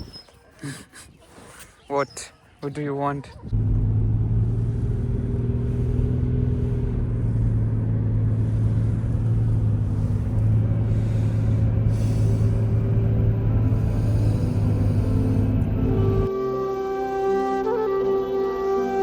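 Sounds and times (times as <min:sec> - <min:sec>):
motor vehicle running: 0:03.3 - 0:16.3.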